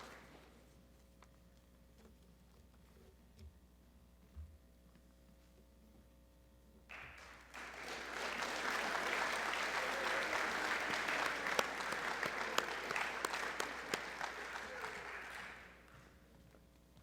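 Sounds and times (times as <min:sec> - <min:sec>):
sharp individual claps: 0:06.9 - 0:15.8
audience applause: 0:06.9 - 0:15.9.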